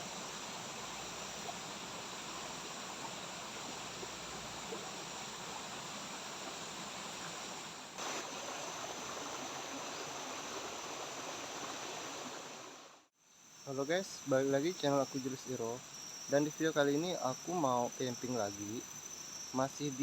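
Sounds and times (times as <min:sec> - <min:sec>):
river water flowing: 0:00.0 - 0:13.1.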